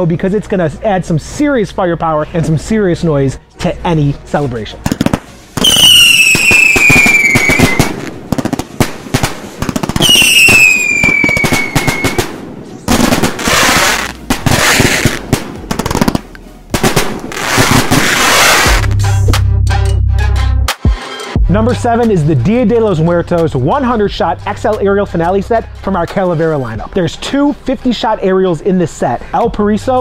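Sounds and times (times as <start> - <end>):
firework bangs: 4.8 - 18.9
firework crackling: 4.8 - 19.0
firework falling whistles: 5.6 - 8.1, 10.0 - 12.3, 17.3 - 18.8.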